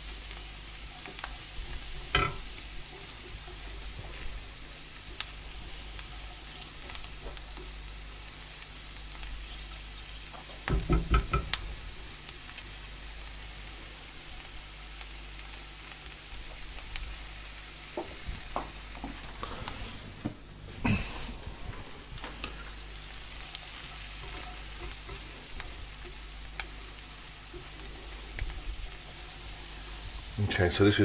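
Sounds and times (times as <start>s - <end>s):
food sizzling in a frying pan: 0.0s - 31.0s
spatula scraping and tapping: 23.5s - 26.7s.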